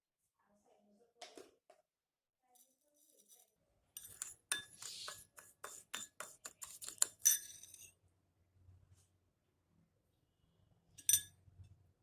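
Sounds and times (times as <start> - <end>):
glass clinking: 7.0 - 7.9, 11.0 - 11.4.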